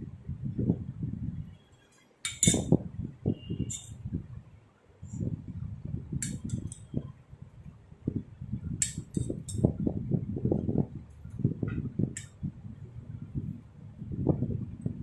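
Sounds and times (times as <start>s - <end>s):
utensils clinking against bowl: 2.3s - 2.7s.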